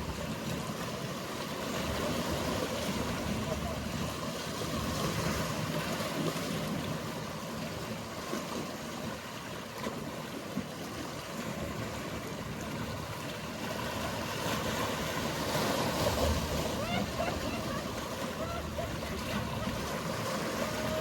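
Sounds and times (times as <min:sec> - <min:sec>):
water lapping: 0:00.0 - 0:21.0
boat engine humming: 0:12.2 - 0:21.0.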